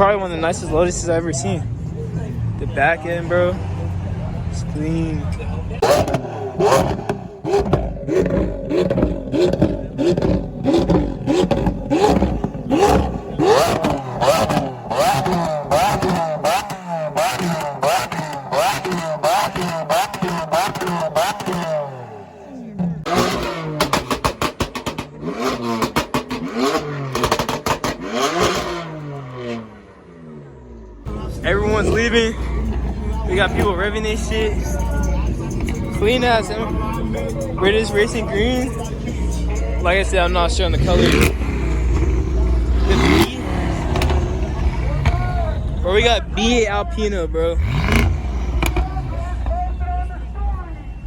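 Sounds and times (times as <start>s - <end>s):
car engine revving: 0.0s - 51.0s
sharp exhaust pops: 5.8s - 21.8s, 23.1s - 29.0s, 31.7s - 45.4s, 47.6s - 49.6s.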